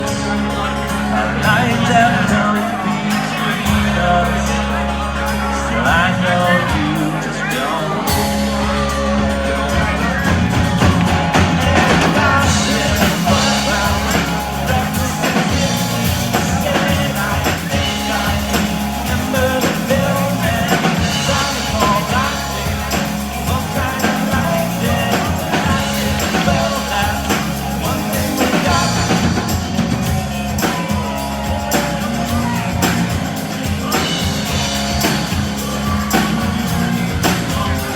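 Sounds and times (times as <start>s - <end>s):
bass guitar: 0.0s - 37.9s
drums: 0.0s - 37.9s
electric guitar: 0.0s - 37.9s
lead vocalist singing: 0.0s - 37.9s.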